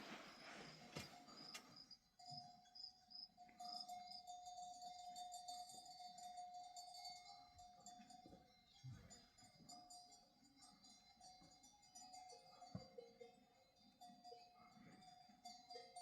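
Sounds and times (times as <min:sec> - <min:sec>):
sheep bells clinking: 0:00.0 - 0:16.0.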